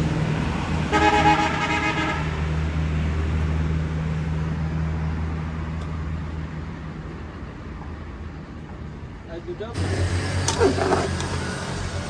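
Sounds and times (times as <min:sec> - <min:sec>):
vehicle horn toot: 0:00.9 - 0:02.2
engine running: 0:09.8 - 0:12.0.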